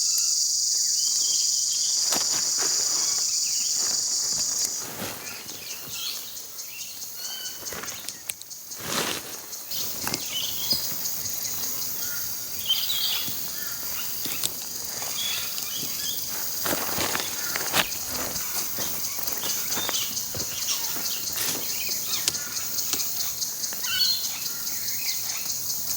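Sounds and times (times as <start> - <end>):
insect chorus: 0.0 - 25.9
small bird chirps: 17.1 - 25.5.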